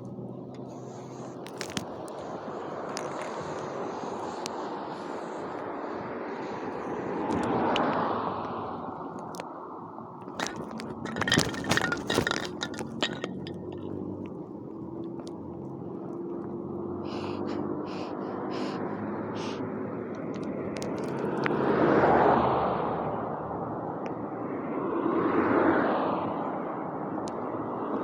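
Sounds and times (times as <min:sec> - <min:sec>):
clicks and knocks: 0:10.3 - 0:14.0.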